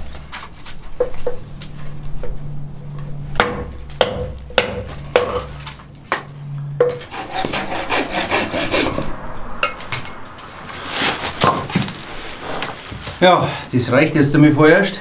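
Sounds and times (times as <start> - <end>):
hand saw sawing firewood: 7.0 - 9.2.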